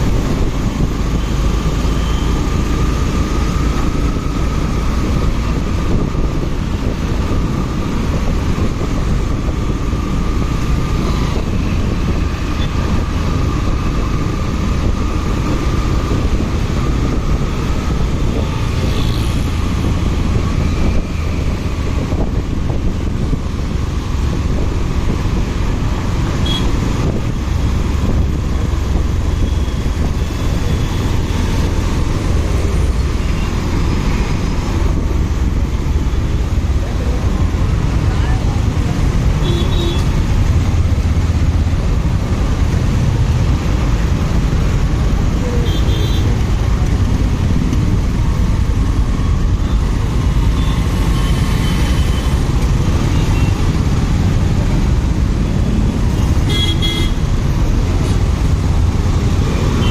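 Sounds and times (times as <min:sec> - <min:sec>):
wind noise on microphone: 0:00.0 - 0:59.9.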